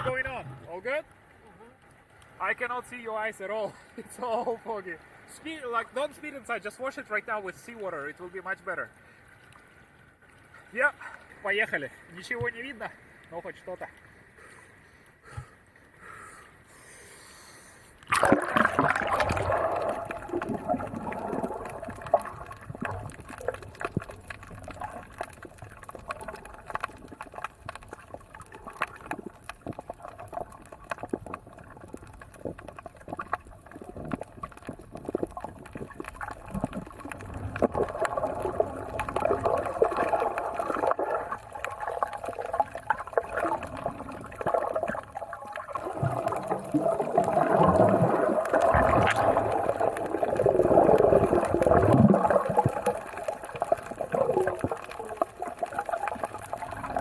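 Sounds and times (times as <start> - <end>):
muffled water sloshing underwater: 0.0 - 2.4, 3.7 - 57.0
clicks and gurgles: 18.0 - 57.0.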